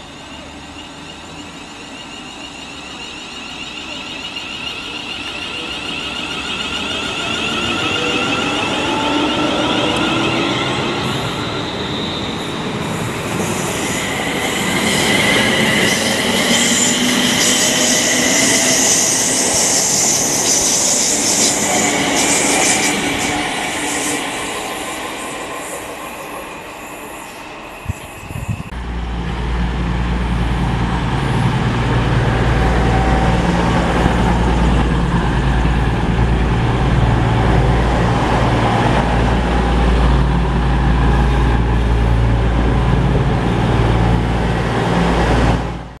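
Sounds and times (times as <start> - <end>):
diesel train engines rumbling: 0.0 - 46.0
electric train running noise: 0.0 - 46.0.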